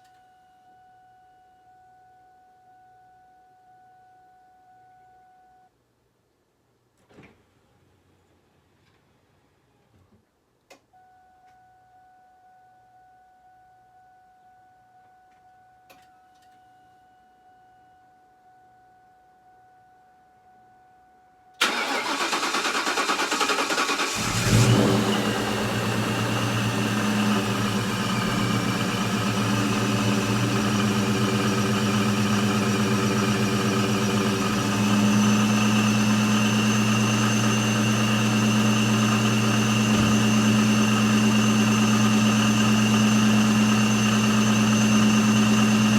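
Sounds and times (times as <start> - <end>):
starter motor cranking: 21.6 - 35.2
car engine starting and idling: 21.6 - 45.9
high supercharger whine: 21.7 - 45.9.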